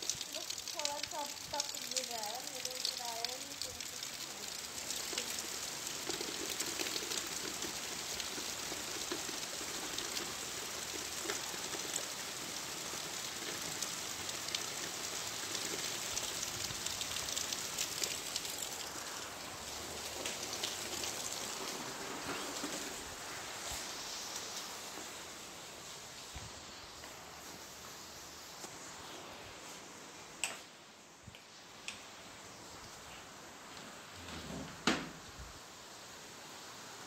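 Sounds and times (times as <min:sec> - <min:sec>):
rain on wet pavement: 0:00.0 - 0:28.8.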